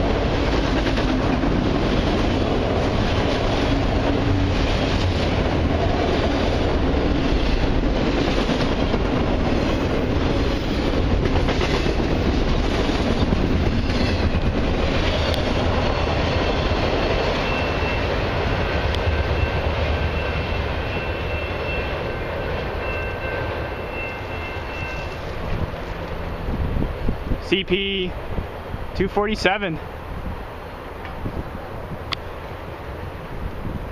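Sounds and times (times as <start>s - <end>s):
wheels clacking over rail joints: 0.0s - 26.4s
freight train rolling past: 0.0s - 33.9s.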